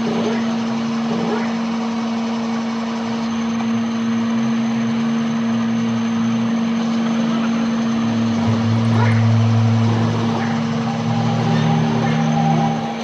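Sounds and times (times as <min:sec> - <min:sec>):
motor humming: 0:00.0 - 0:13.0
low drone shifting in pitch: 0:07.9 - 0:13.0.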